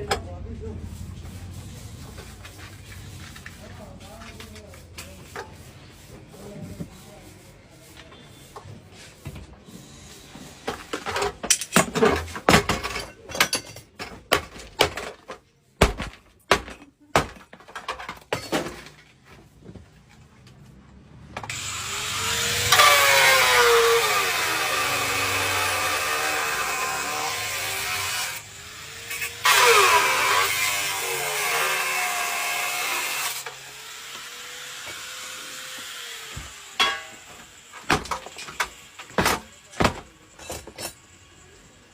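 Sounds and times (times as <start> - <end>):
knocks on metal parts: 11.3 - 18.9, 36.4 - 40.9
power tool running: 21.5 - 39.1.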